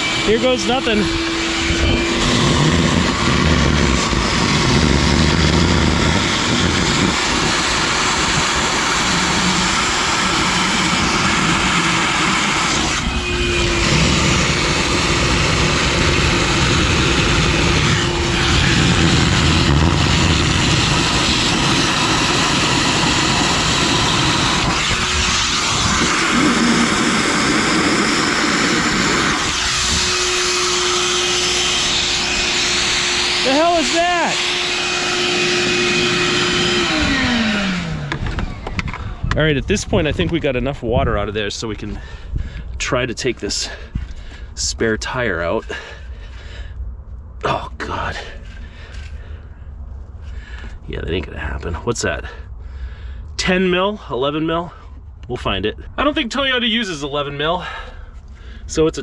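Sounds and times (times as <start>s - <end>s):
shop vacuum sucking water: 0.0s - 41.8s.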